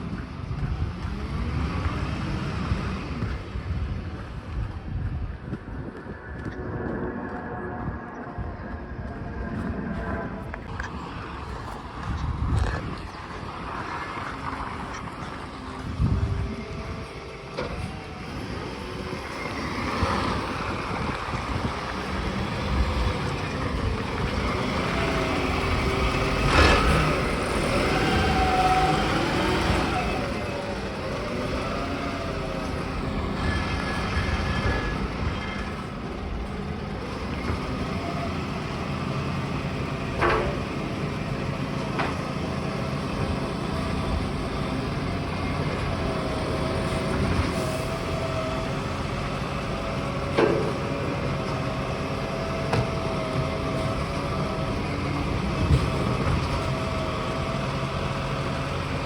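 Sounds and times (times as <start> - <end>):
garbage truck engine running: 0.0 - 59.0
wavering whine: 4.2 - 37.0.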